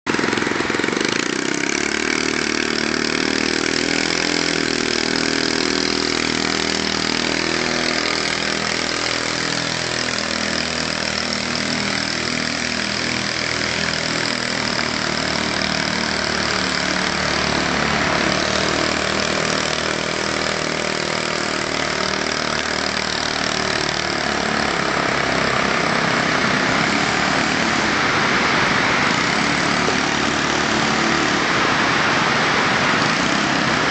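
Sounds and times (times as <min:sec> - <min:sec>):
small car engine running: 0:00.0 - 0:33.9
loud constant hiss: 0:00.1 - 0:33.9.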